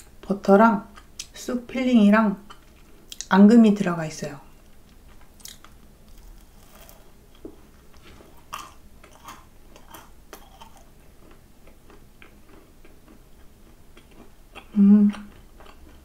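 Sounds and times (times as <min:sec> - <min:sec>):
chewing: 0:04.8 - 0:16.0.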